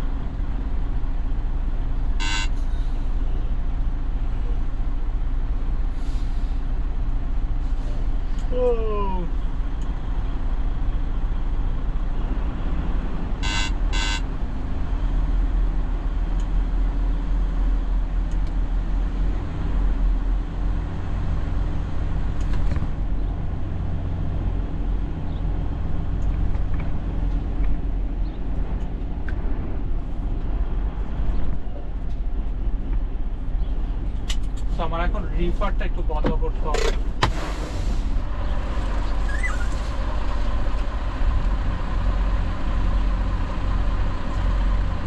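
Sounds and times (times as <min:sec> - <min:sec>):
diesel truck engine rumbling: 0:00.0 - 0:45.0
short high beeps: 0:02.2 - 0:02.6, 0:13.4 - 0:14.2.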